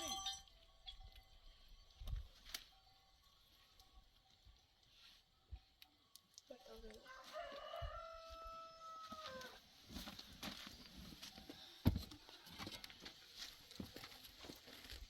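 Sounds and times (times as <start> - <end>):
rooster crowing: 7.1 - 9.6.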